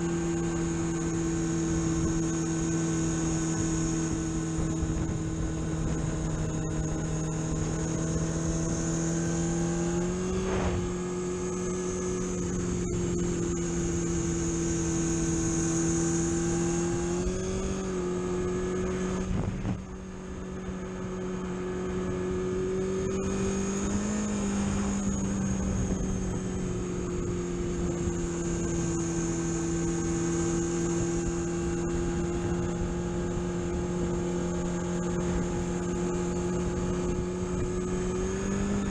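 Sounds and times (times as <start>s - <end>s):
car engine running: 0.0s - 38.9s
road hiss: 10.3s - 11.0s.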